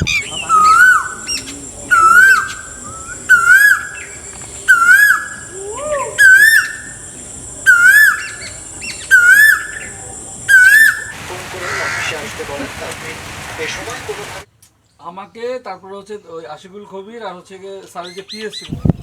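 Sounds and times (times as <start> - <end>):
bird whistled call: 0.0 - 7.0, 7.7 - 9.9, 10.5 - 14.4
lower bird call: 0.0 - 14.4.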